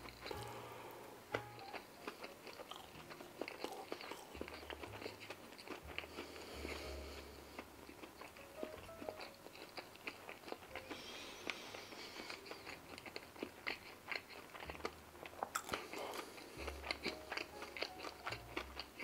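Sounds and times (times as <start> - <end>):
chewing mouth clicks: 1.6 - 6.8, 12.2 - 19.0.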